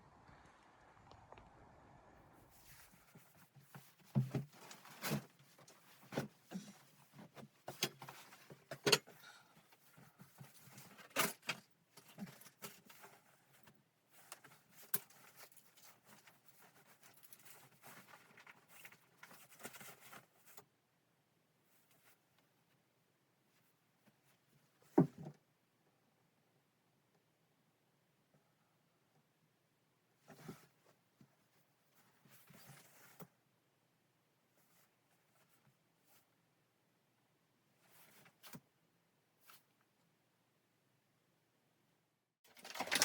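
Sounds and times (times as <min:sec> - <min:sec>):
rustling: 0:02.4 - 0:20.7, 0:42.5 - 0:43.0.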